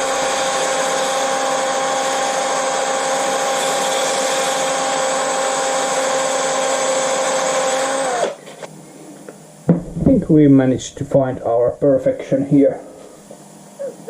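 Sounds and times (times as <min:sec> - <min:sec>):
power drill motor whine: 0:00.0 - 0:08.7.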